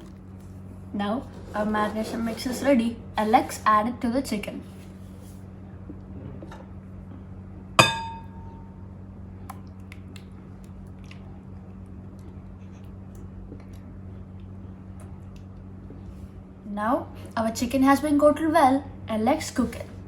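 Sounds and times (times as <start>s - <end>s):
steady low hum: 0.0s - 20.0s
utensil clinking against bowl: 7.8s - 8.4s.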